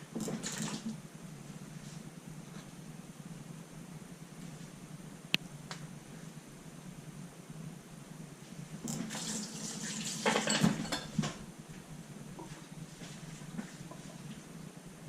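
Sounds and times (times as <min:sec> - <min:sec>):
dishes knocking and clinking: 0:10.2 - 0:11.4.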